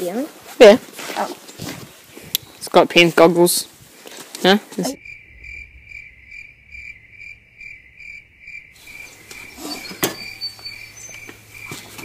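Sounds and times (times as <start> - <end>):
insect chirping: 1.9 - 2.8, 4.7 - 12.0.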